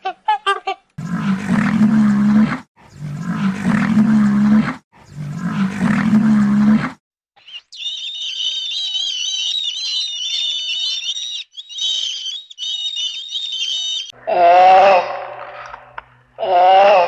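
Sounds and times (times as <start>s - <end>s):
large animal deep rough calls: 1.0s - 7.0s
high-pitched chirps: 7.4s - 14.2s.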